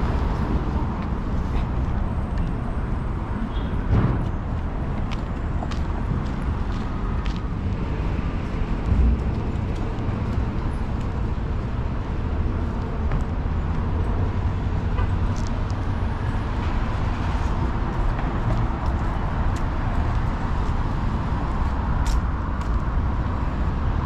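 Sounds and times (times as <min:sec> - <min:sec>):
cars passing: 0:00.0 - 0:24.0
road traffic rumble: 0:00.0 - 0:24.0
clicks and knocks from street: 0:03.6 - 0:11.6, 0:12.6 - 0:14.1, 0:14.8 - 0:15.9, 0:16.5 - 0:20.8, 0:21.6 - 0:23.0.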